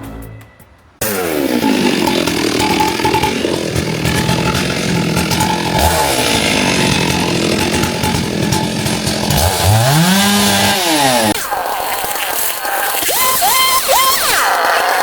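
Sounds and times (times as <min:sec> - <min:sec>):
petrol power tool engine revving: 0:01.0 - 0:11.4.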